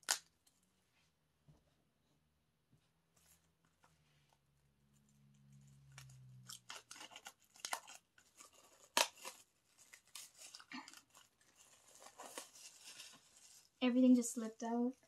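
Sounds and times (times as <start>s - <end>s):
plastic wrapping ripping: 0.0s - 0.3s, 5.9s - 13.8s.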